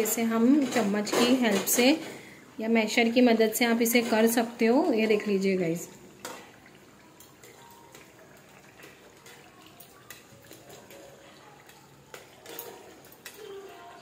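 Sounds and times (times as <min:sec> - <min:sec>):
spatula mashing food: 0:07.3 - 0:14.0.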